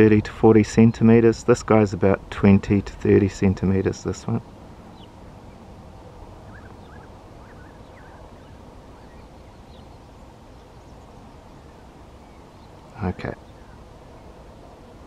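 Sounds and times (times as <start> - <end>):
steady low rumble: 0.0 - 15.0
faint bird chirps: 6.4 - 14.4.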